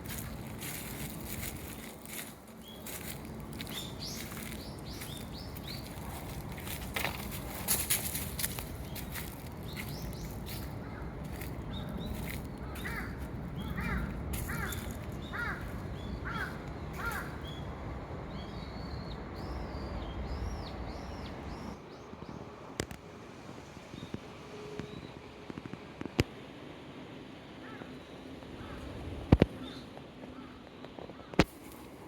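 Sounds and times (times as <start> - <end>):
small birds calling: 0.0 - 21.8
crow cawing: 12.7 - 17.4, 27.6 - 27.9.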